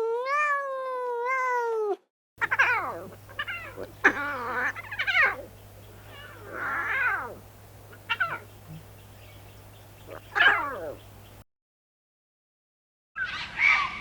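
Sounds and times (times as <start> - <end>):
cat meowing: 0.0 - 9.0, 10.0 - 11.0
faint low hum: 2.4 - 11.4.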